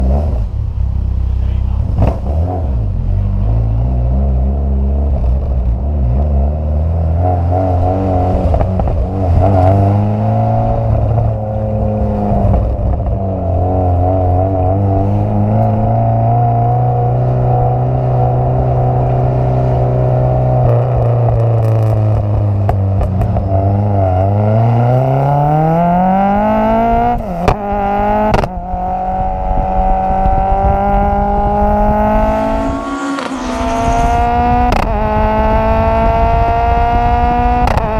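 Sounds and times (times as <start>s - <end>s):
race car engine revving: 0.0s - 37.9s
gear changes: 27.0s - 37.9s.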